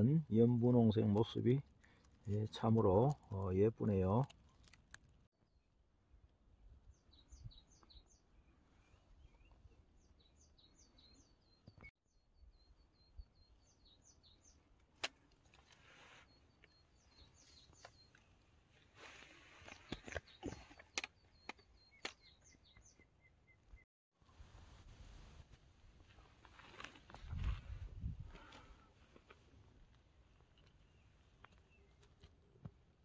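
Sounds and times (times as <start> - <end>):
faint songbird singing: 5.4 - 5.8, 6.6 - 14.8, 15.8 - 23.9, 30.2 - 32.6.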